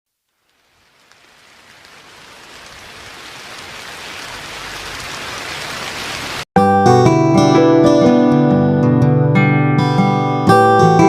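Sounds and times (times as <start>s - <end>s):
steady rain falling: 0.1s - 6.5s.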